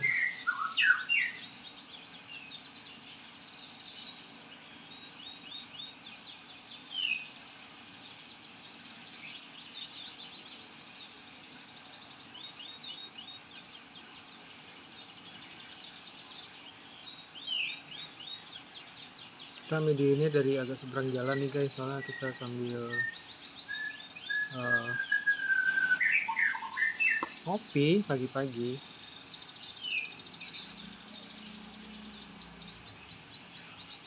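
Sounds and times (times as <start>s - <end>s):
faint background noise: 0.0s - 34.0s
songbirds chirping in trills: 0.0s - 34.0s
downward-sliding whistled bird notes: 24.4s - 27.3s.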